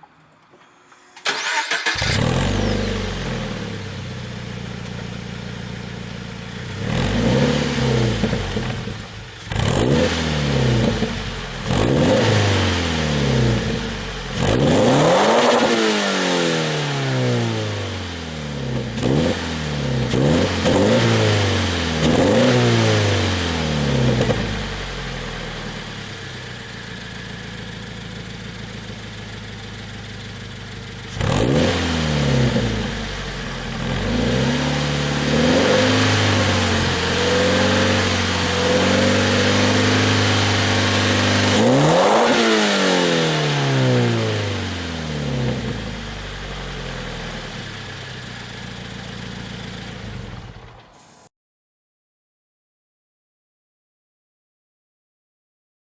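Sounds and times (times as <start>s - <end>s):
car engine revving: 1.2s - 3.9s, 9.5s - 18.0s, 31.1s - 47.5s.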